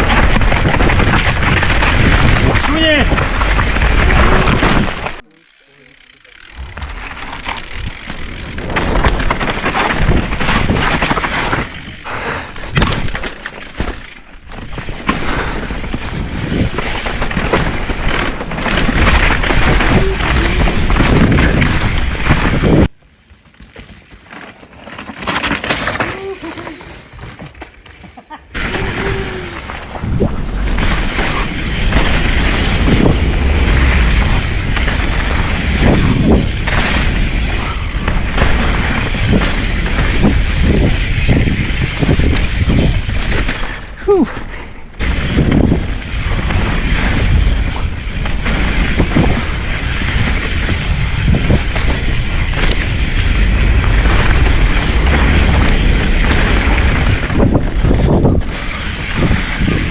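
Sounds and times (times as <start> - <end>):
tyres rumbling over dirt and rock: 0.0 - 5.2, 6.4 - 43.9, 45.0 - 59.9
bicycle clattering over impacts: 5.9 - 12.1, 12.7 - 28.9
wind buffeting microphone: 28.5 - 43.8, 45.0 - 59.9.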